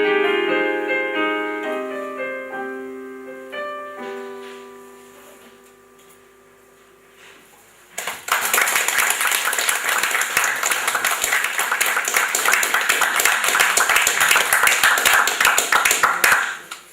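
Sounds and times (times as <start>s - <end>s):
audience applauding: 8.0s - 16.9s.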